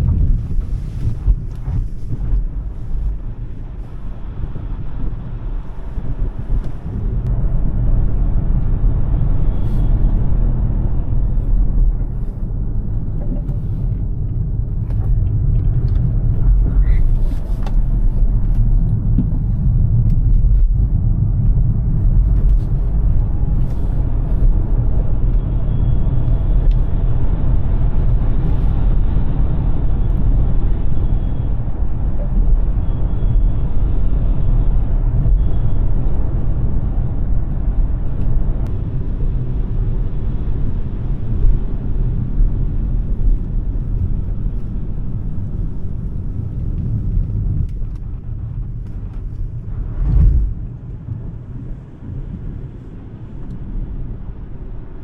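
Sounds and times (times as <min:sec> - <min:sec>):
car road and tyre noise: 0:00.0 - 0:55.0.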